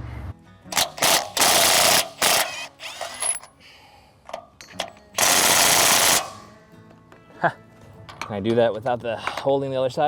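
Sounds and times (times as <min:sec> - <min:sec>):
ratcheting and clanking metal tools: 0:00.7 - 0:03.6, 0:04.3 - 0:06.4, 0:08.1 - 0:09.6.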